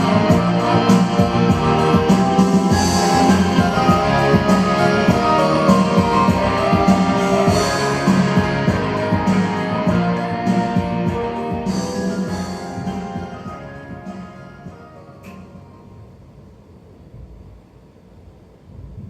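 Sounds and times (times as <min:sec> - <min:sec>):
electric guitar with bass and drums: 0:00.0 - 0:14.8.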